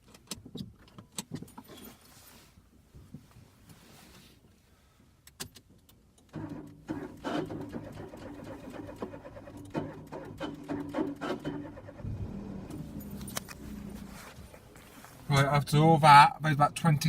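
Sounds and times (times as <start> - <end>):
car pulsing hum: 7.0 - 15.8.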